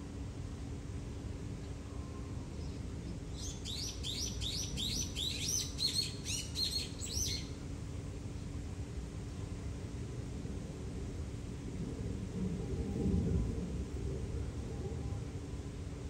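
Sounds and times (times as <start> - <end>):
bird chirping rapidly: 3.4 - 7.4.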